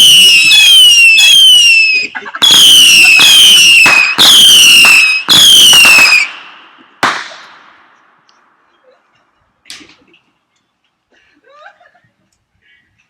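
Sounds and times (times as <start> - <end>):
whistling firework missiles: 0.0 - 8.3
firework bang: 2.3 - 8.0.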